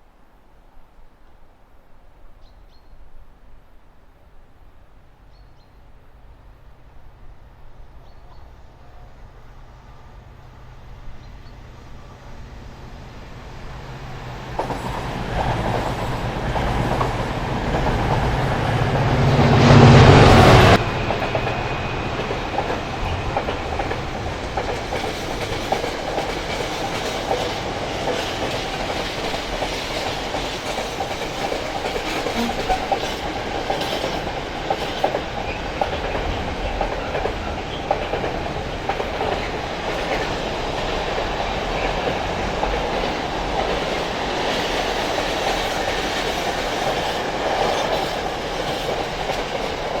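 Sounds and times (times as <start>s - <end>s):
diesel locomotive passing: 6.2s - 50.0s
wheels clacking over rail joints: 20.7s - 50.0s.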